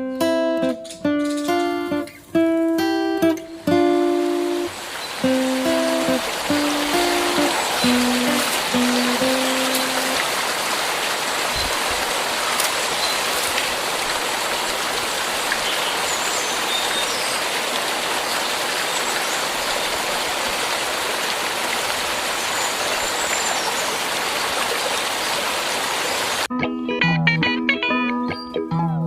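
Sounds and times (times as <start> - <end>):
steady rushing hiss: 1.5 - 16.6
bird chirps: 15.6 - 17.5.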